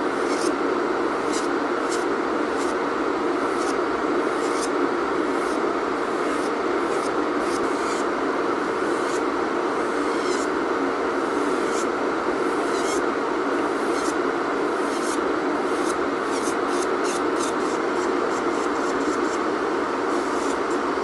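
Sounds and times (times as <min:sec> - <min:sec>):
steady machine hum: 0:00.0 - 0:21.0
nail file scraping fingernail: 0:01.3 - 0:02.0, 0:13.9 - 0:14.2, 0:15.8 - 0:19.4.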